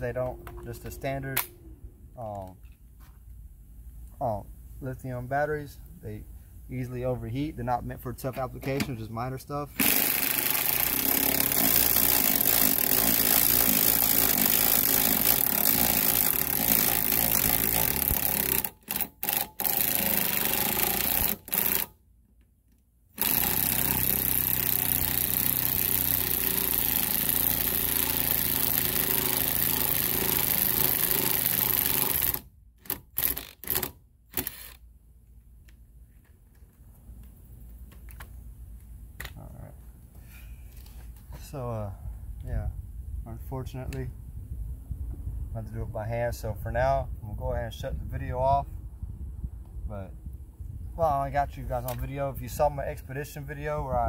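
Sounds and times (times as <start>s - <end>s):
cordless impact driver hammering: 9.8s - 21.9s, 23.2s - 34.8s.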